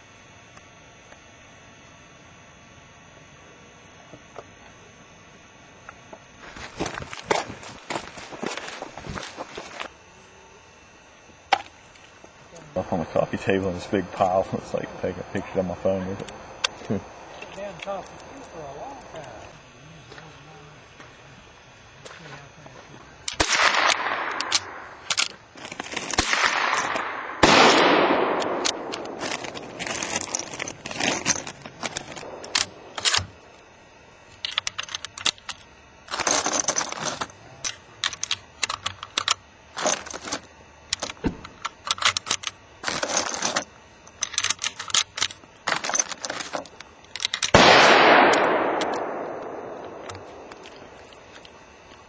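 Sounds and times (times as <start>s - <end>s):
loud echoing gunshots: 23.4s - 25.1s, 26.2s - 30.1s, 32.1s - 33.4s, 47.5s - 51.0s
rapid rifle fire: 23.4s - 25.3s, 25.9s - 33.5s, 47.5s - 51.2s.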